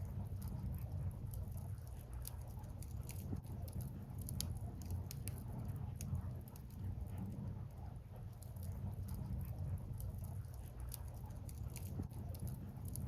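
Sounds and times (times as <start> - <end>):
firewood crackling and popping: 0.0 - 7.2
low fire rumble: 0.0 - 13.0.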